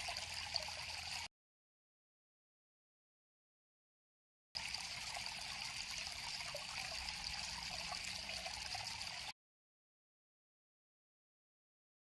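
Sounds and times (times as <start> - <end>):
river water flowing: 0.0 - 1.3, 4.6 - 9.3.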